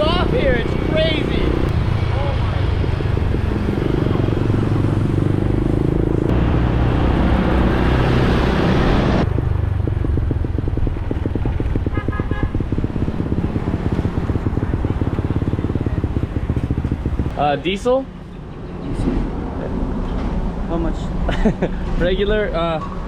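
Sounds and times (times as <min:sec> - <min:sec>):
motorcycle engine running: 0:00.0 - 0:08.2, 0:09.2 - 0:18.6
wind rushing over microphone: 0:00.0 - 0:17.6.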